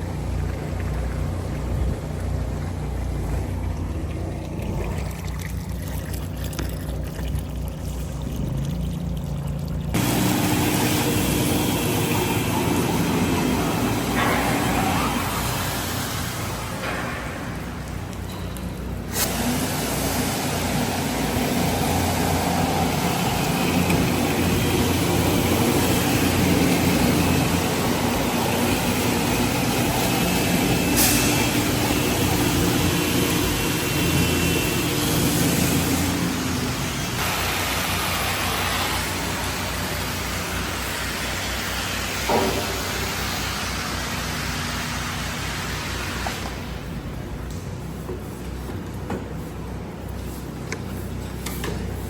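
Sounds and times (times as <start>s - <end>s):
engine low hum: 0.0s - 52.0s
pressure washer spray hiss: 10.0s - 17.8s, 19.1s - 46.7s.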